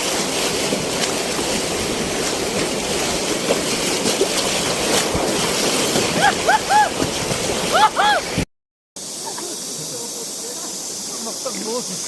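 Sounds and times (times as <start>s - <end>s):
rushing river rapid: 0.0s - 8.4s.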